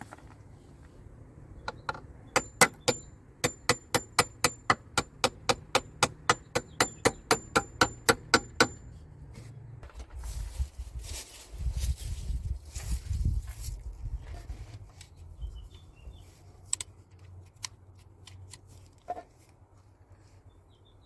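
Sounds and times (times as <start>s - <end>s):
hammer driving nail into wood: 2.4s - 8.9s.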